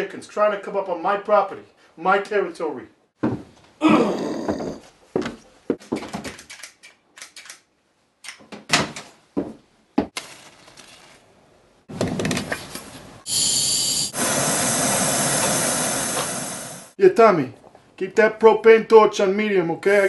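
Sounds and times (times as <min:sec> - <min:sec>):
torch burning hiss: 0:13.2 - 0:17.0.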